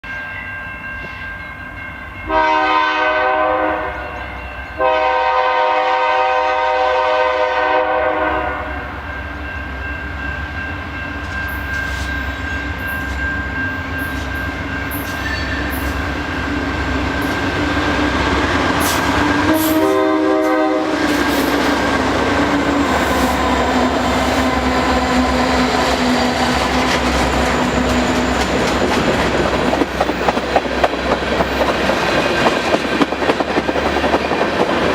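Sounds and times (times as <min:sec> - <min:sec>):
train rumble: 0:00.6 - 0:34.9
locomotive air horn blasts: 0:02.3 - 0:09.0, 0:18.9 - 0:21.6.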